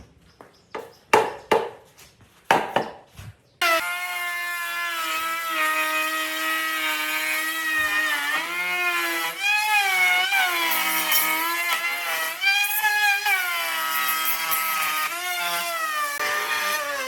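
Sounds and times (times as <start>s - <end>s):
power tool motor whining: 3.6s - 17.0s.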